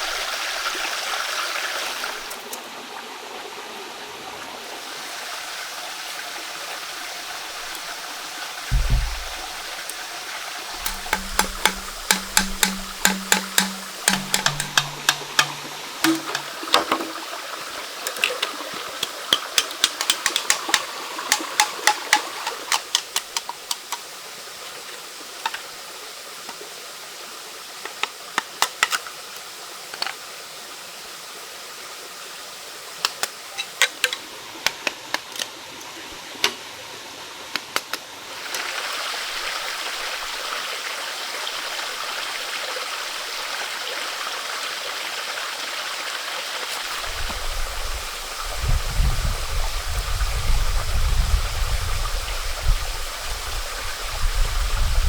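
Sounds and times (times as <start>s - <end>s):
running water: 0.0s - 30.9s, 38.2s - 55.0s
low steady hiss: 3.7s - 40.5s
sharp taps in clusters: 10.8s - 17.1s.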